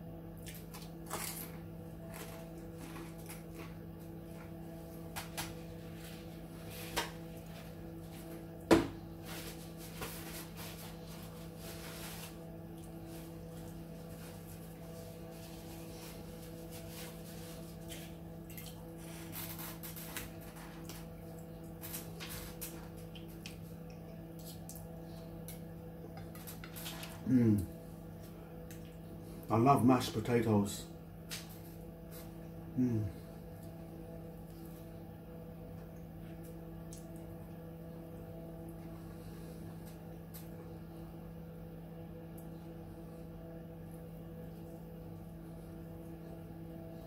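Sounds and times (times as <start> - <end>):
background hum: 0.0 - 47.0
quiet chewing and mouth sounds: 28.1 - 29.5.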